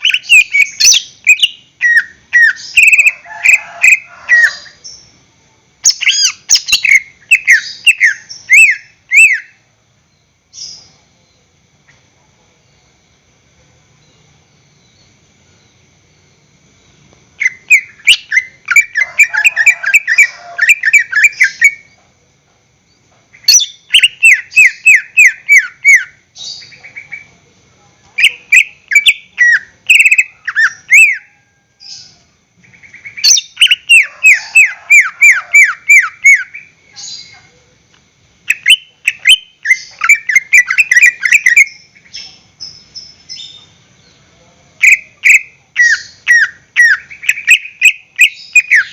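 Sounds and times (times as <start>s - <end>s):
bird singing chattering notes: 0.0s - 3.2s, 5.8s - 9.6s, 32.6s - 37.4s, 38.5s - 43.8s, 44.8s - 48.9s
faint high-pitched whine: 0.0s - 48.9s.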